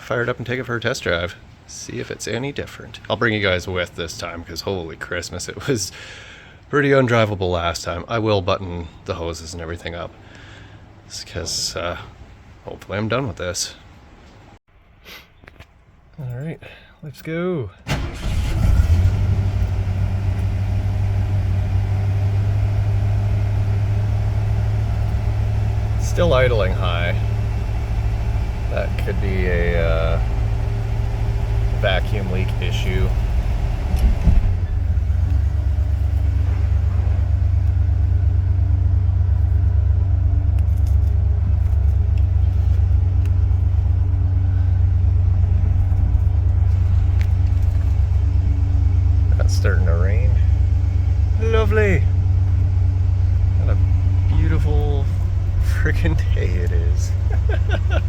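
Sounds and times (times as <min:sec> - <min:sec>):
engine starting and idling: 0:17.8 - 0:58.0.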